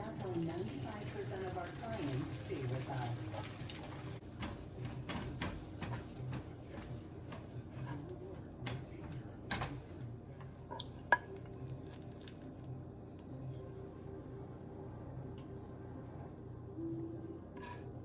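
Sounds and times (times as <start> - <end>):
utensil scraping frying pan: 1.7 - 8.8, 17.6 - 18.0.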